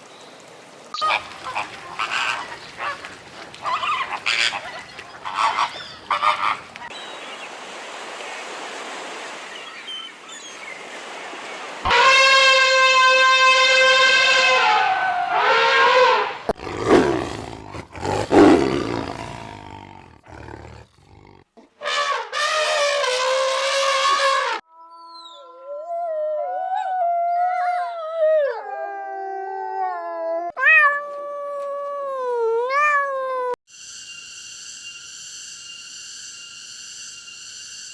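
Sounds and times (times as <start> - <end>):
animal roar: 16.6 - 21.4.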